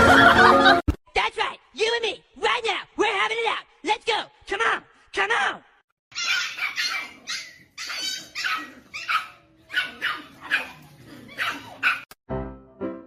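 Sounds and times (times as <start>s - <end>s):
dog barking: 6.1s - 12.2s.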